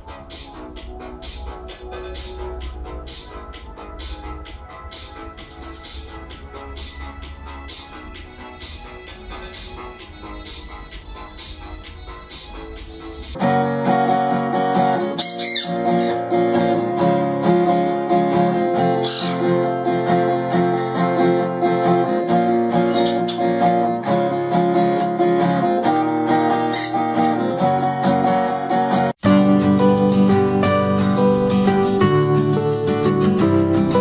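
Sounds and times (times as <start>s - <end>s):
guitar picked and strummed: 13.4s - 34.0s.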